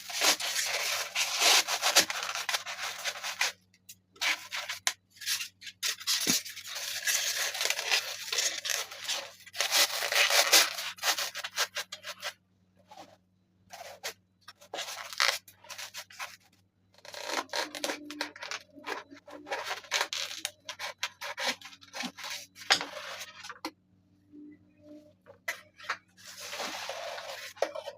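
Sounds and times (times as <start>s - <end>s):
faint steady hum: 0.0s - 27.9s
hand rubbing and scraping material: 25.6s - 27.9s.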